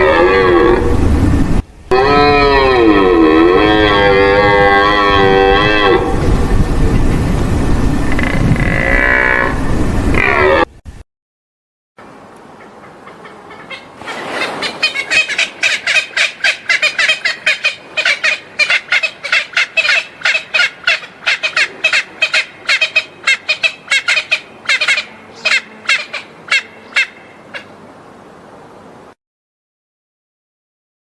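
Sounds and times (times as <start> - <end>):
bird squawking rapidly: 13.1 - 27.7.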